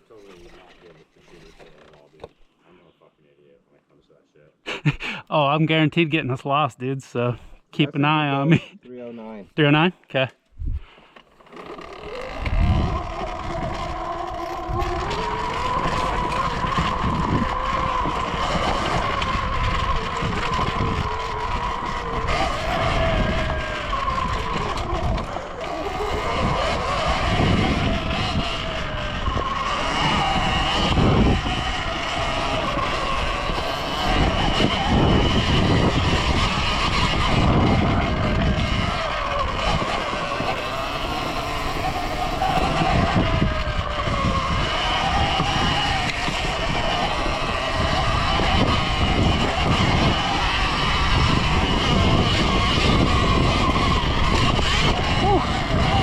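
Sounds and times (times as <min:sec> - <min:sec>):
wind buffeting microphone: 0:10.6 - 0:11.0, 0:11.7 - 0:56.0
electric motor whine: 0:11.2 - 0:56.0
low rumble of riding noise: 0:11.8 - 0:56.0.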